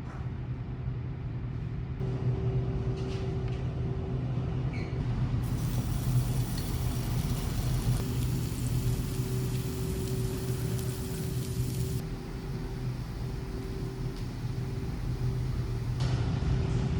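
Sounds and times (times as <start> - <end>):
hiss: 5.4 - 16.0.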